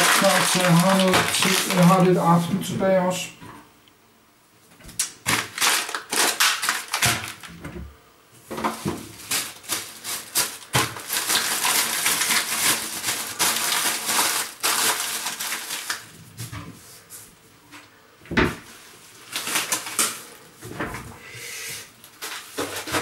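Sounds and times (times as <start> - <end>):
dense crackling and rustling: 0.0 - 3.2, 5.0 - 7.6, 8.4 - 16.8, 18.5 - 21.0, 22.0 - 23.0.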